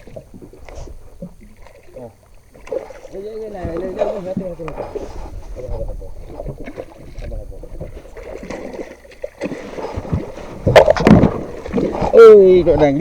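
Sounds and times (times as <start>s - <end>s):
boat low rumble: 0.0s - 13.0s.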